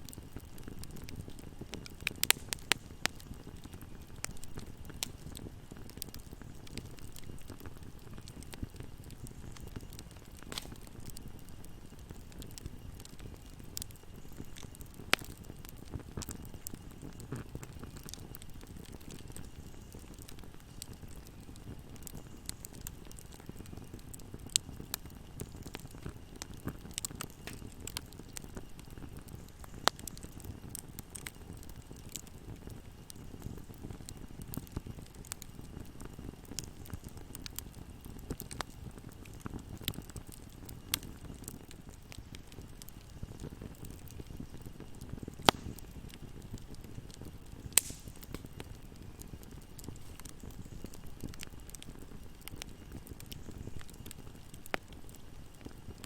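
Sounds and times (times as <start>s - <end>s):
fire crackling and popping: 0.0s - 56.0s
flame rushing in fireplace: 9.8s - 11.1s, 47.7s - 48.7s.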